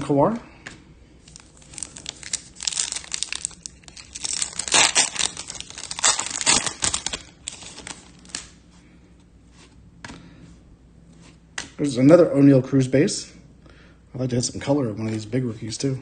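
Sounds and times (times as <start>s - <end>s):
foil wrapper crinkling and tearing: 1.2s - 8.6s.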